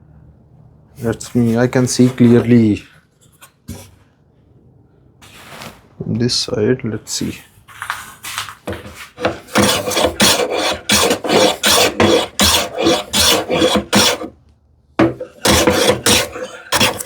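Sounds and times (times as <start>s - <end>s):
hand plane shaving wood: 9.2s - 14.3s, 15.0s - 17.0s.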